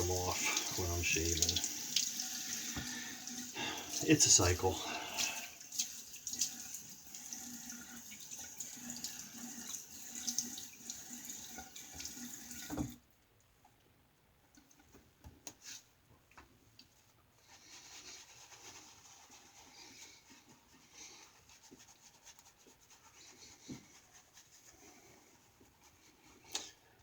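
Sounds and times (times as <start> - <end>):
tap running into a sink: 0.0 - 2.1, 2.7 - 3.0, 11.6 - 13.0.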